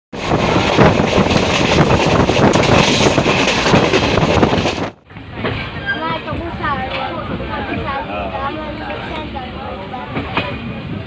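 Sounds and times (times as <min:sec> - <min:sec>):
train wheels clattering on track: 0:00.2 - 0:07.9, 0:10.0 - 0:11.0.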